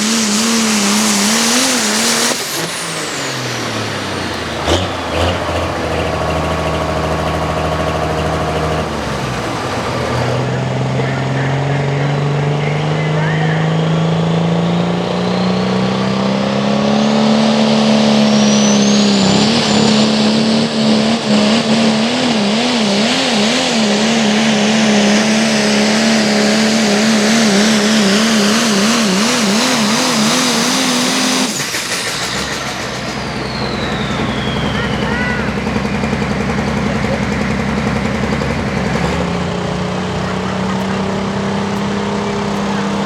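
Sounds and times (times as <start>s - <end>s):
diesel truck engine at full throttle: 0.0s - 43.0s
turbo whistle: 26.8s - 35.7s.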